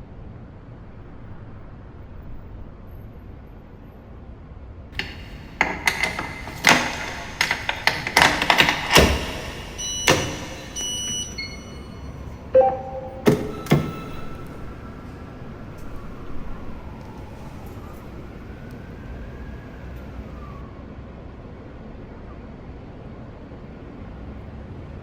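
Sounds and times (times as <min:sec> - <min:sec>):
sharp metallic clanks and knocks: 0:05.0 - 0:12.0, 0:12.6 - 0:14.5
electronic beeping tones: 0:08.9 - 0:14.3.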